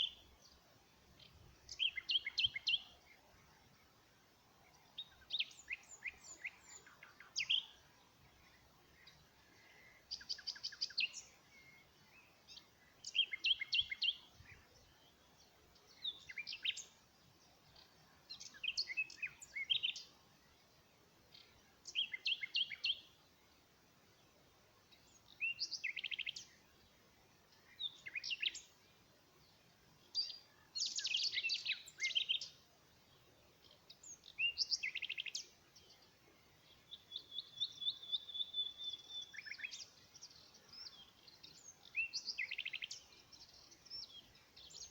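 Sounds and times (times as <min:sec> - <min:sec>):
bird chirping: 0:00.0 - 0:44.9
faint background hiss: 0:00.0 - 0:44.9
long held bird whistle: 0:09.6 - 0:12.3, 0:30.2 - 0:32.6, 0:34.3 - 0:35.5, 0:36.9 - 0:44.9.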